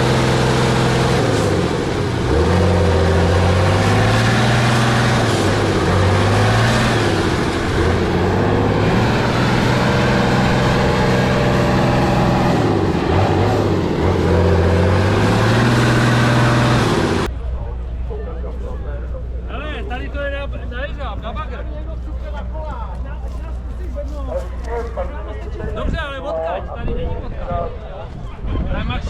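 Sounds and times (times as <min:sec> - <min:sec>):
truck diesel engine revving: 0:00.0 - 0:17.3.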